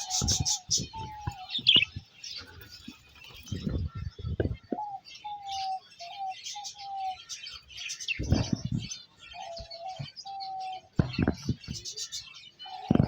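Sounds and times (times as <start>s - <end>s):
birds chirping and twittering: 0.0s - 13.0s.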